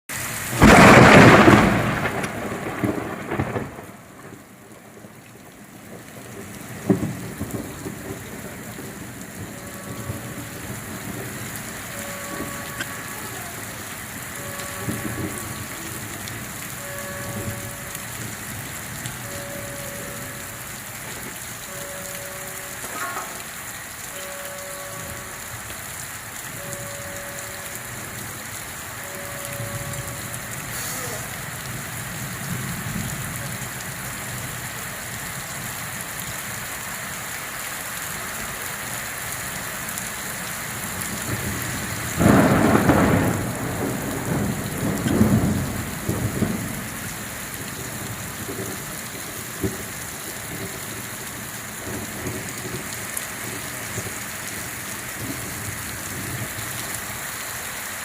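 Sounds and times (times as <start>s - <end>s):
steady rain falling: 0.1s - 58.0s
thunder clap rumbling: 0.5s - 25.8s, 26.5s - 34.5s, 40.9s - 56.8s.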